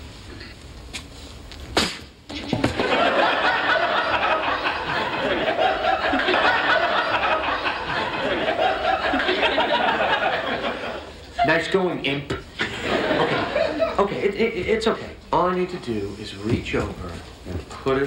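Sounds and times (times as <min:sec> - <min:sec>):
studio audience laughing: 0:02.3 - 0:11.7, 0:12.6 - 0:14.3.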